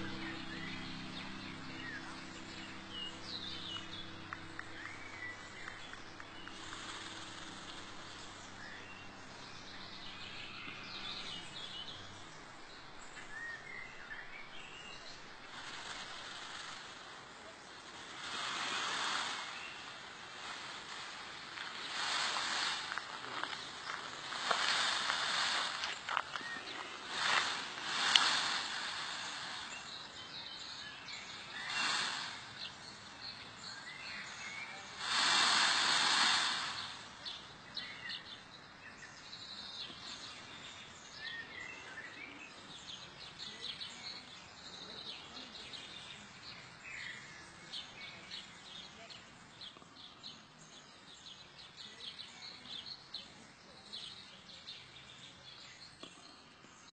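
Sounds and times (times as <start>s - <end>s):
small birds chirping: 0.0s - 56.9s
bursts of rushing noise: 27.0s - 29.9s, 31.6s - 32.6s, 35.0s - 37.3s.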